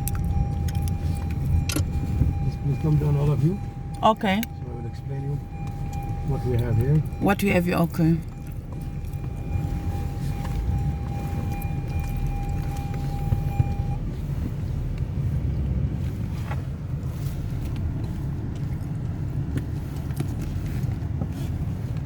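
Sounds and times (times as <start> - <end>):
motor vehicle rumble: 0.0 - 22.0.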